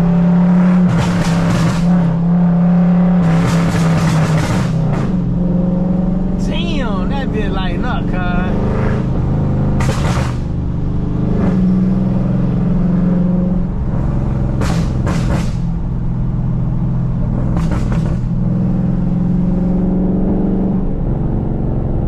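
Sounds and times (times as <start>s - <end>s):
car engine running: 0.0s - 22.0s
crackling exhaust pops: 9.8s - 10.5s, 14.6s - 15.7s, 17.5s - 18.3s.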